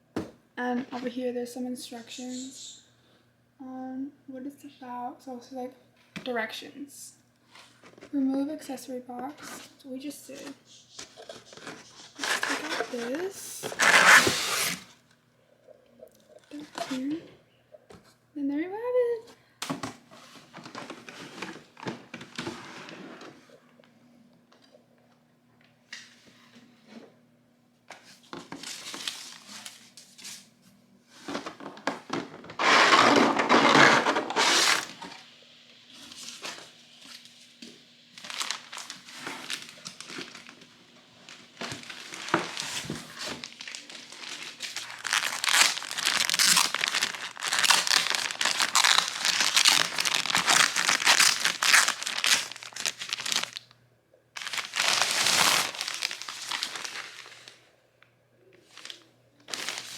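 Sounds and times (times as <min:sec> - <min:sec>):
packaging crinkling and rustling: 0:10.4 - 0:14.9, 0:20.3 - 0:23.4, 0:27.9 - 0:30.5, 0:31.2 - 0:35.2, 0:38.1 - 0:53.8, 0:54.4 - 0:57.6, 0:58.6 - 0:59.9.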